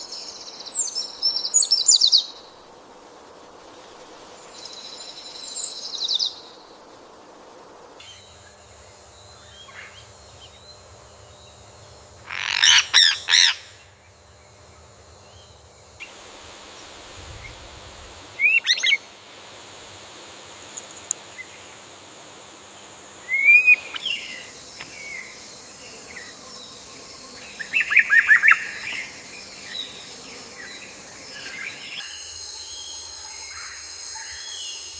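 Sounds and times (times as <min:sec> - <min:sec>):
quiet outdoor ambience: 0:00.0 - 0:34.9
birds calling and chirping: 0:12.2 - 0:14.6, 0:23.3 - 0:32.1.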